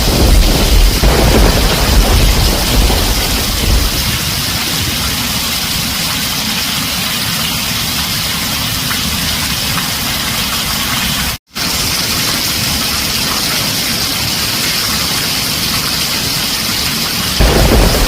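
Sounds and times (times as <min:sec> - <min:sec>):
low rumble of thunder: 0:00.0 - 0:05.8, 0:17.4 - 0:18.0
heavy rain on a tin roof: 0:00.0 - 0:18.0.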